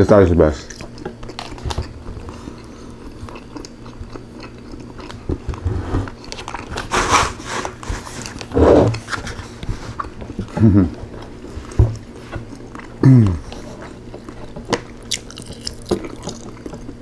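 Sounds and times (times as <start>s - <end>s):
chewing and biting chicken: 0.5s - 7.0s, 7.7s - 17.0s
mouth sounds: 13.0s - 13.5s.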